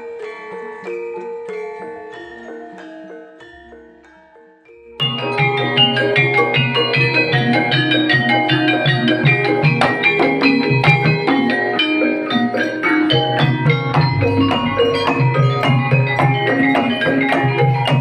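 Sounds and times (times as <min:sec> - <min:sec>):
gamelan tuned bars ringing: 0:00.0 - 0:18.0
hand drum pattern: 0:05.0 - 0:18.0.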